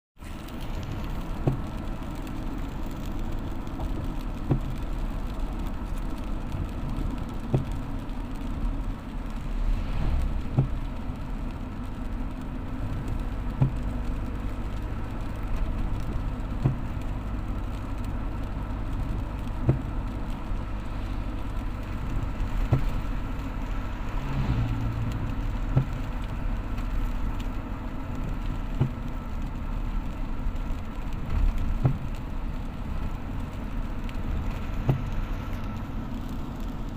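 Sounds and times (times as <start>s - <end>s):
vehicle engine running: 15.9s - 27.5s.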